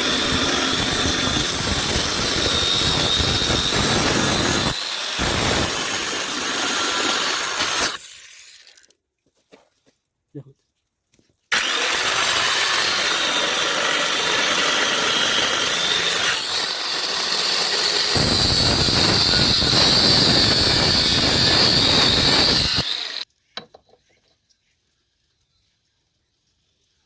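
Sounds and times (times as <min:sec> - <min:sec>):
power tool grinding steel pipe: 0:00.0 - 0:08.8, 0:11.5 - 0:23.3.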